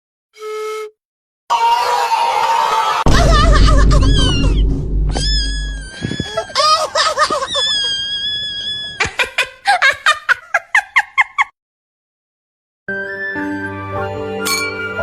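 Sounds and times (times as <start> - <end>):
heavy bass: 3.1 - 6.3
high wavering wails: 3.2 - 6.6.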